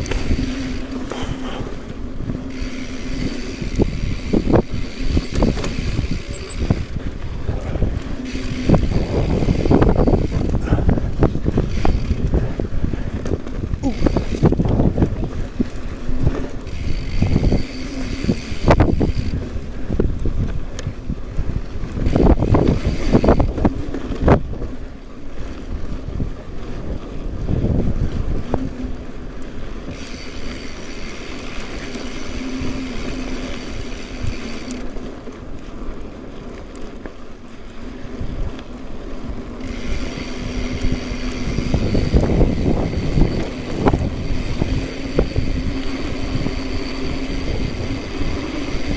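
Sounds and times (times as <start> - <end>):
steady buzz: 0.0 - 12.6, 16.4 - 19.4, 29.9 - 34.9, 39.5 - 48.9
wind buffeting microphone: 0.0 - 48.9.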